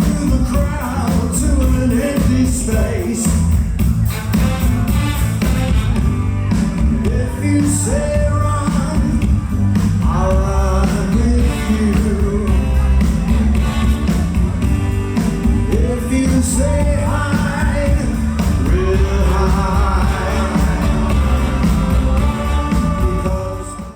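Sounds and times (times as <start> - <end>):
song with singing voice: 0.0 - 5.5, 6.5 - 23.9.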